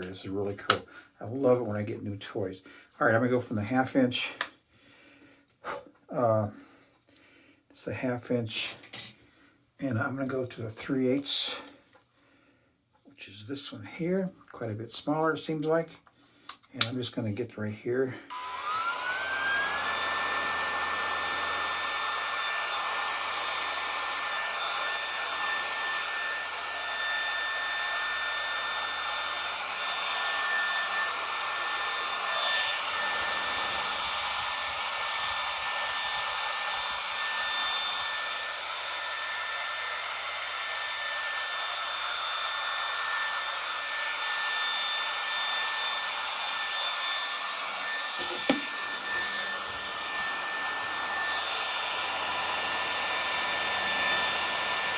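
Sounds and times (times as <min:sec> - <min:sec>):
hair clipper motor whine: 0:18.3 - 0:54.9
vacuum fan hiss: 0:18.3 - 0:54.9.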